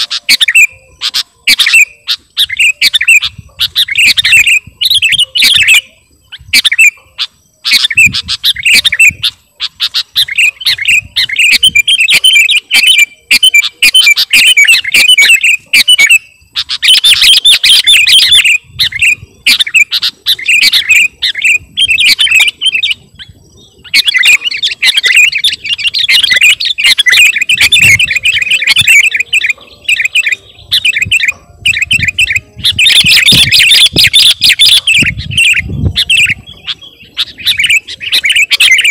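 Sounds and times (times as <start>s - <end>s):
bulbul chirping song: 0.0s - 38.9s.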